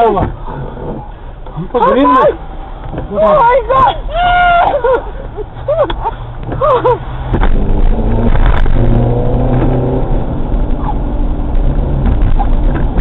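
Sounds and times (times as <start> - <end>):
car engine revving: 5.6 - 13.0.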